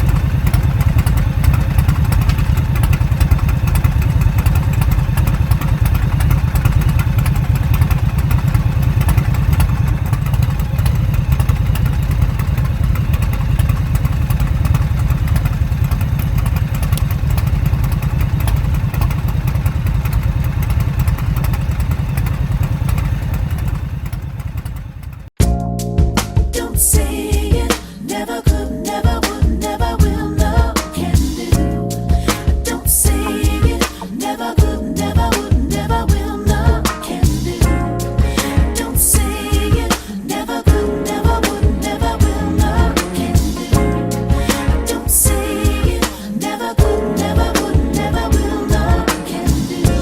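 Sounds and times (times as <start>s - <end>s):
motorcycle engines running: 0.0s - 25.4s, 40.7s - 50.0s.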